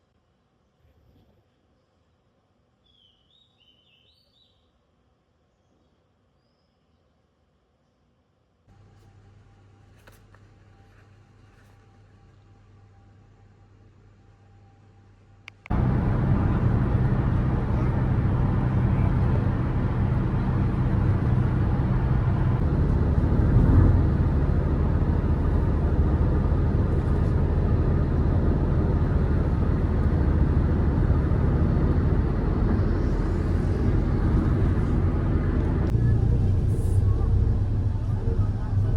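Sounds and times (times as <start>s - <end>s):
vehicle engine and road noise: 15.4s - 38.9s.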